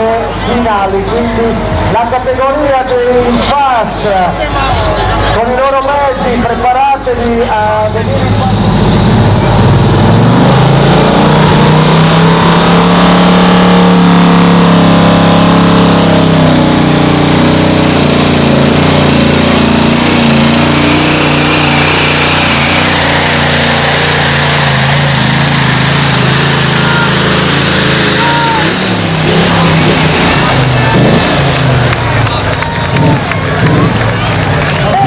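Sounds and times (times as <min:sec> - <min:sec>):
tractor engine running loud: 0:07.2 - 0:35.0.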